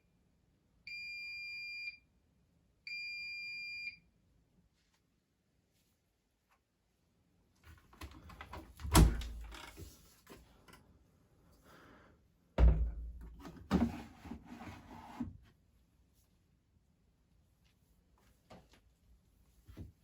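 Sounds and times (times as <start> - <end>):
washing machine door thunks: 8.8 - 9.5, 12.6 - 13.5.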